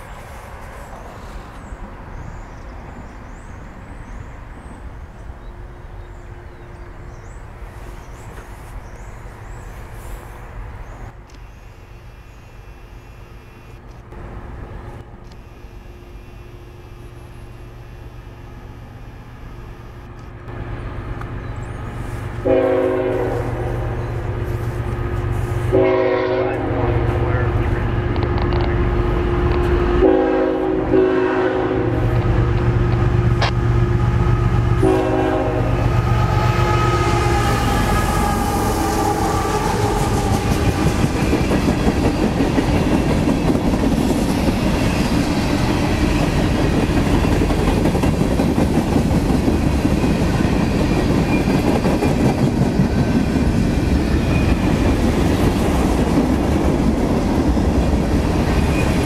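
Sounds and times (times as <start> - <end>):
freight train rumbling past: 0.0 - 11.2, 14.1 - 15.3, 20.4 - 59.0
locomotive air horn blasts: 11.4 - 13.8, 15.4 - 20.1, 22.0 - 24.6, 25.2 - 27.6, 29.6 - 32.3, 33.4 - 41.1
clickety-clack of wheels: 39.8 - 59.0.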